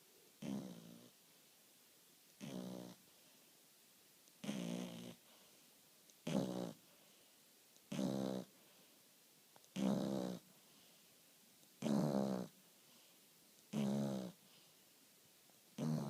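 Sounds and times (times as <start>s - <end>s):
quiet breaths: 0.0s - 16.0s
dog snoring: 0.4s - 1.2s, 2.4s - 3.0s, 4.4s - 5.4s, 6.2s - 6.9s, 7.9s - 8.5s, 9.7s - 10.5s, 11.8s - 12.6s, 13.7s - 14.4s, 15.8s - 16.0s.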